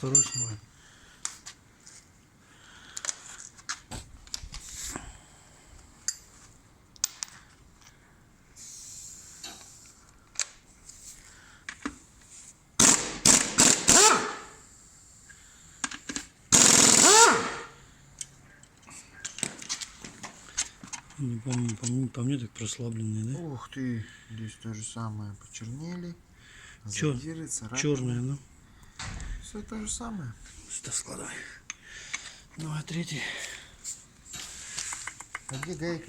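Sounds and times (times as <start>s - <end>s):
metal tool clicks and knocks: 0.0s - 0.6s
impact wrench rattling: 12.8s - 14.4s, 16.2s - 17.7s.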